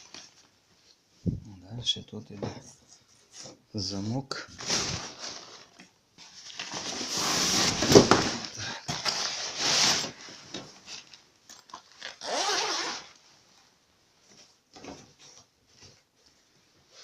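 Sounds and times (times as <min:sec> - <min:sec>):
fabric rustling: 0:04.6 - 0:11.2
bag zipper being pulled open: 0:12.0 - 0:13.2.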